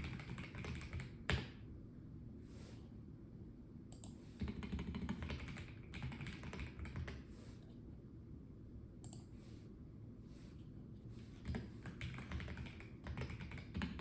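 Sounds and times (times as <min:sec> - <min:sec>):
mechanical keyboard typing: 0:00.0 - 0:01.4, 0:04.4 - 0:07.2, 0:11.5 - 0:14.0.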